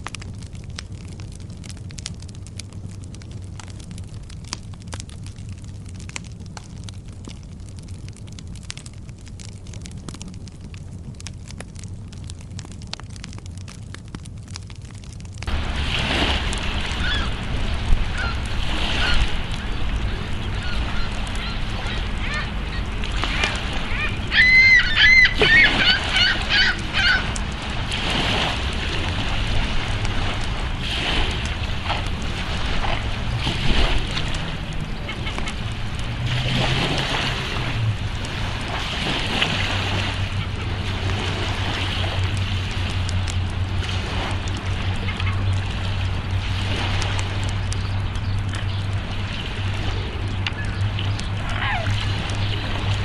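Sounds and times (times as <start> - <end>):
steady low hum: 0.0 - 53.0
steady low rumble: 0.0 - 53.0
ducks quacking: 16.8 - 27.4, 34.9 - 35.6, 44.9 - 45.6
farm fowl honking: 17.0 - 17.4, 18.1 - 27.4.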